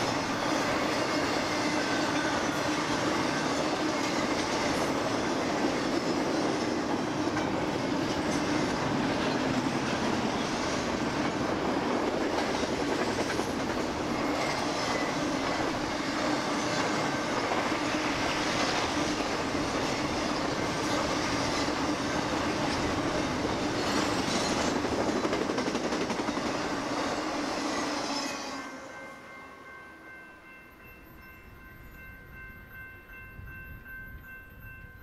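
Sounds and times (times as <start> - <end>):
freight train wheels clattering: 0.0 - 28.0.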